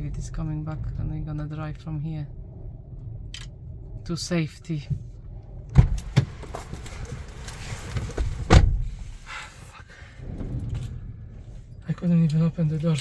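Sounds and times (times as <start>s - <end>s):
wind rumbling on microphone: 0.0s - 13.0s
van doors thumping: 5.7s - 6.7s, 8.0s - 9.0s.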